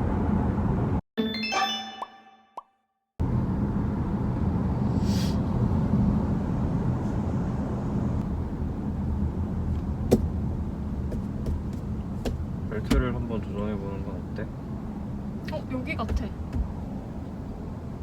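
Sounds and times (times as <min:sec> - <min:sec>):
road and tyre rumble in a car: 0:00.0 - 0:01.0, 0:03.2 - 0:18.0
brief hiss: 0:04.9 - 0:05.4.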